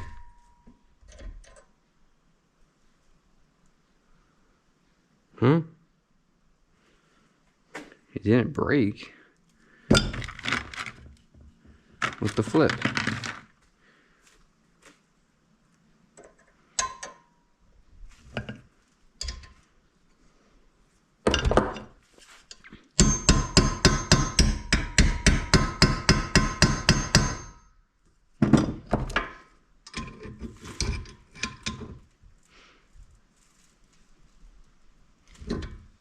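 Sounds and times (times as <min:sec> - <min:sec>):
hammer striking metal: 0:23.0 - 0:27.6.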